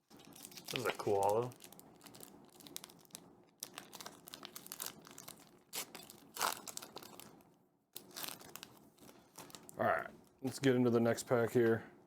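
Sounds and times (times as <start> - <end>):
foil wrapper and cards crinkling: 0.0 - 7.4, 8.0 - 9.8.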